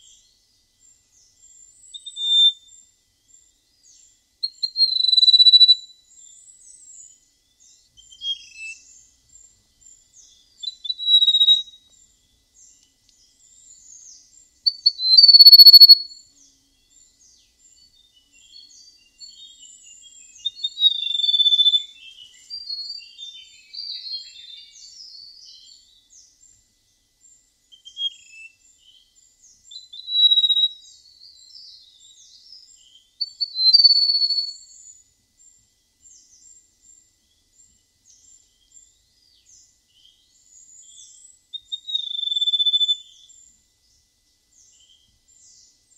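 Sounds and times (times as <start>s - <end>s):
faint high chirps: 0.0s - 26.6s, 27.3s - 45.9s
songbird whistling: 1.8s - 2.8s, 4.4s - 5.9s, 8.0s - 9.0s, 10.2s - 12.0s, 14.6s - 16.2s, 17.8s - 25.9s, 27.7s - 28.6s, 29.7s - 34.9s, 40.8s - 43.3s.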